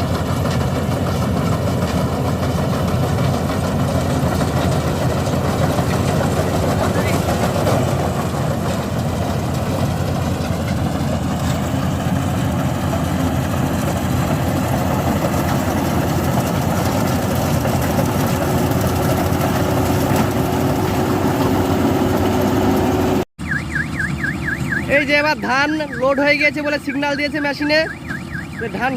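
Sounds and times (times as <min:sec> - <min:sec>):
combine harvester engine drone: 0:00.0 - 0:28.9.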